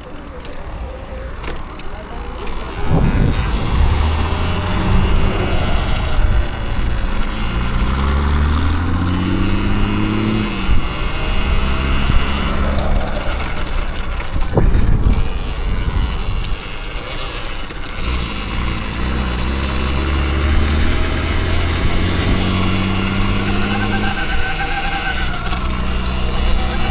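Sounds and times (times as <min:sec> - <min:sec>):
electric motor whine: 0:00.4 - 0:26.9
heavy low rumble: 0:02.6 - 0:16.6.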